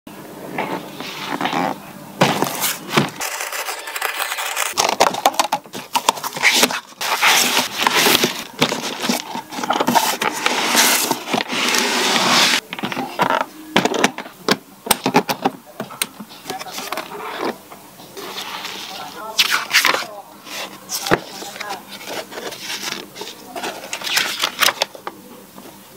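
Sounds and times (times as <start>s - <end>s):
cardboard box scraping and rustling: 0.7s - 13.3s, 18.2s - 24.7s.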